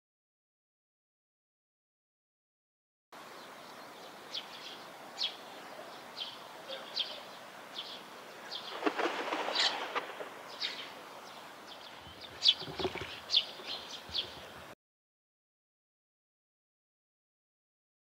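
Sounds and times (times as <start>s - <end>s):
bird chirping: 3.2s - 14.7s
background hiss: 3.2s - 14.8s.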